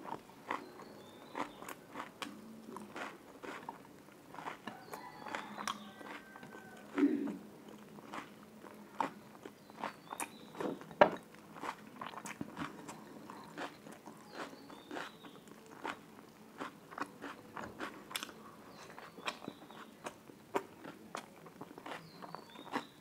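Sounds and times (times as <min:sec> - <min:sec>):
person chewing and crunching: 0:00.0 - 0:23.0.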